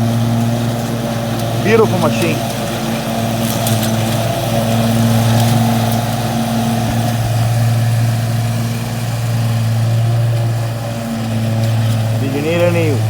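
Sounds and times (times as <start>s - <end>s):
riding lawn mower engine running: 0.0s - 13.0s.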